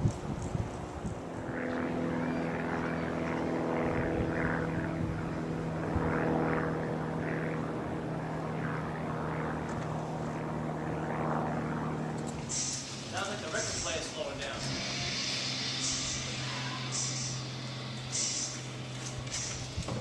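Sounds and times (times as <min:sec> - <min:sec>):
steady engine drone: 0:00.0 - 0:20.0
rising and falling higher sound: 0:12.3 - 0:19.9.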